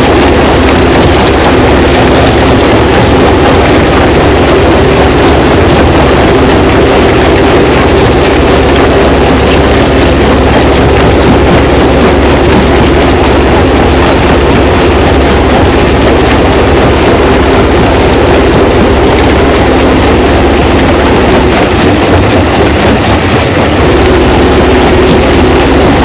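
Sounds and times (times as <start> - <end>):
constant low hum: 0.0 - 26.0.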